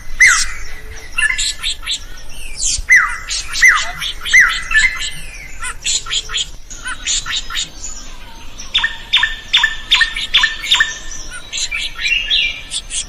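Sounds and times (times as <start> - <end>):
bird chirping and singing: 0.0 - 13.0.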